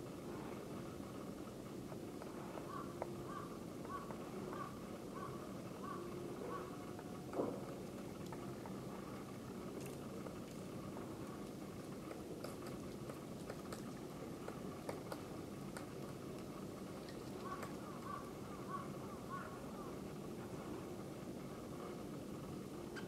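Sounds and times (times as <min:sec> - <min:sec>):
outdoor background noise: 0:00.0 - 0:23.0
bird calls: 0:02.7 - 0:06.8, 0:17.4 - 0:19.9.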